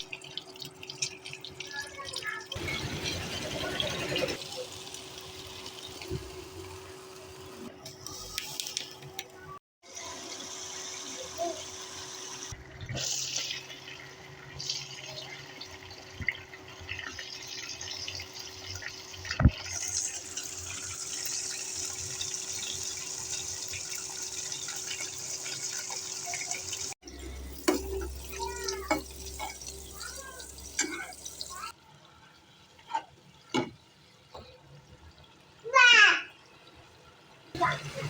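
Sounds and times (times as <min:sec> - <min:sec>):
tap water running into sink: 0:14.6 - 0:31.7.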